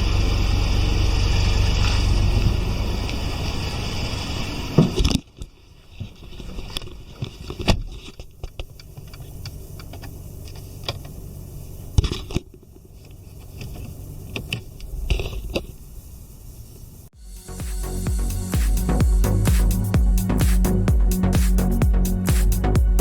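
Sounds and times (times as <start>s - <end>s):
car engine idling: 0.0s - 4.8s, 15.7s - 23.0s.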